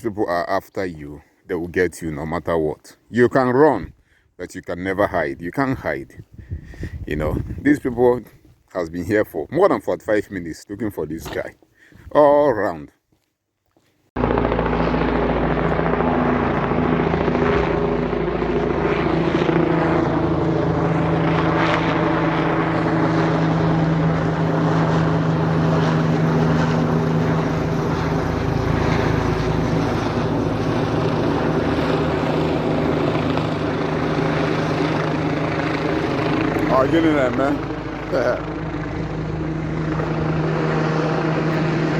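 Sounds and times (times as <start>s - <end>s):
helicopter rotor and engine: 14.2s - 41.9s.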